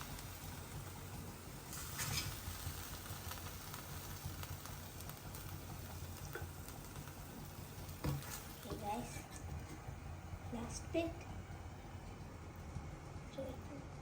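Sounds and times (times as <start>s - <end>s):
low steady hum: 0.0s - 14.0s
spoon scraping a pan: 9.0s - 9.5s.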